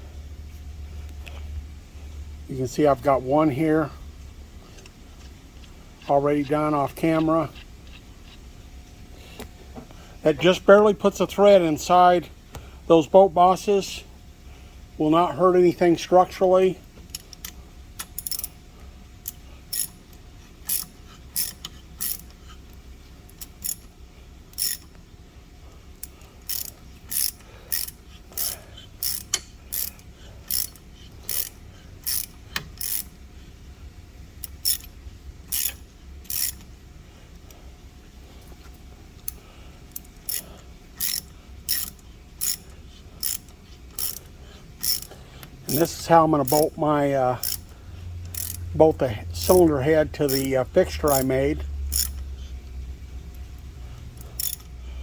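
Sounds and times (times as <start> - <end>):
low steady hum: 0.0 - 55.0
ratchet wrench clicking: 17.1 - 18.6, 19.2 - 22.5, 23.3 - 23.9, 24.5 - 25.0, 26.0 - 33.2, 34.4 - 36.7, 39.2 - 46.8, 47.4 - 52.5, 53.6 - 54.8.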